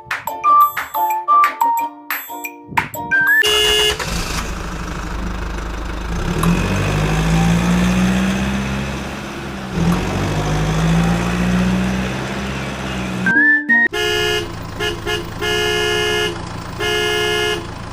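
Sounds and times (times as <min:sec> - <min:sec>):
vehicle engine humming: 0:03.4 - 0:17.9.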